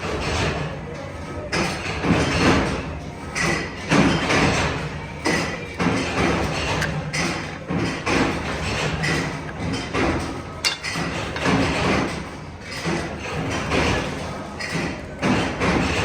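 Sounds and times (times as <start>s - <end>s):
machinery running with thuds: 3.8s - 14.0s.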